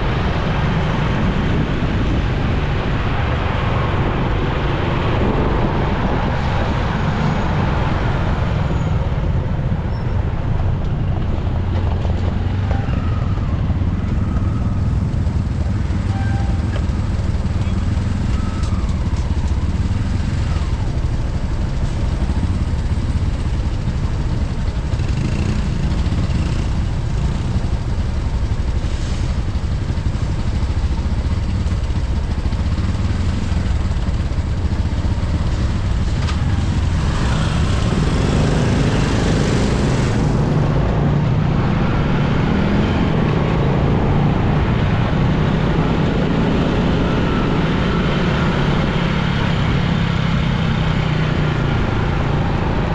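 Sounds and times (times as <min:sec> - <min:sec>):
motorcycle engine: 0:00.0 - 0:52.9
surrounding vehicles: 0:00.0 - 0:52.9.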